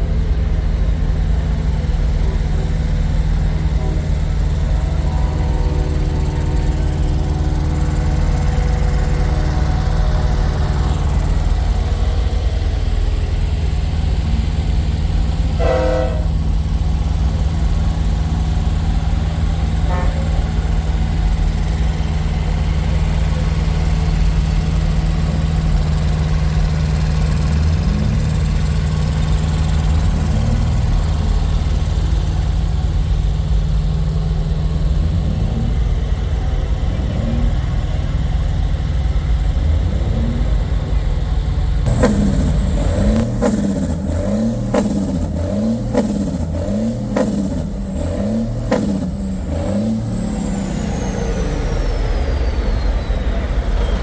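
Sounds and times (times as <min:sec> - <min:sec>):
truck diesel engines idling: 0:00.0 - 0:54.0
truck horn blast: 0:02.5 - 0:32.0, 0:41.9 - 0:50.4.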